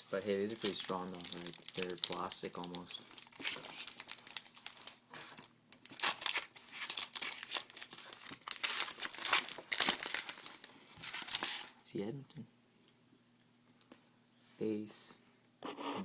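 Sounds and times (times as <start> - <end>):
wrapper crinkling and tearing: 0.0 - 11.8.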